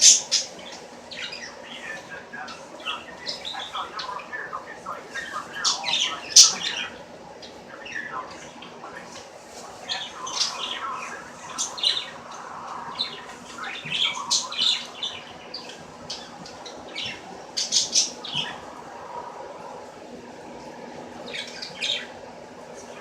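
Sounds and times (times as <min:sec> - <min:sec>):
bird chirping and squawking: 0:00.0 - 0:04.4, 0:05.2 - 0:08.6, 0:09.8 - 0:18.6.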